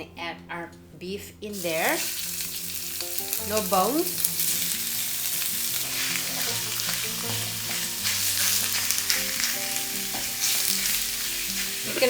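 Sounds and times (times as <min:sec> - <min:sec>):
soft background music: 0:00.0 - 0:12.0
beef sizzling in a pot: 0:01.6 - 0:12.0.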